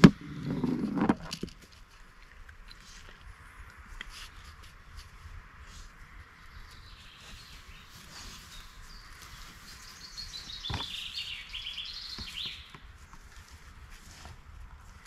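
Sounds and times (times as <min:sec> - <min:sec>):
songbird singing: 0:05.9 - 0:13.3.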